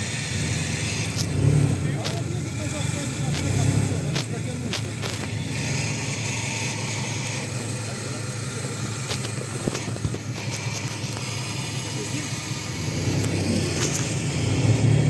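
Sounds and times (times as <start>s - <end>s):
vehicle engine running: 0.0s - 15.0s
knocks and clunks: 8.8s - 11.7s.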